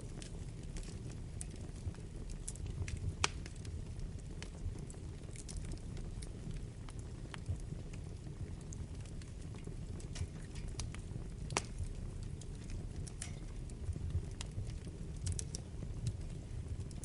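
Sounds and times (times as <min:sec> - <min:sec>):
burning wood crackling and popping: 0:00.0 - 0:17.0
fire flames rumbling: 0:00.0 - 0:17.0.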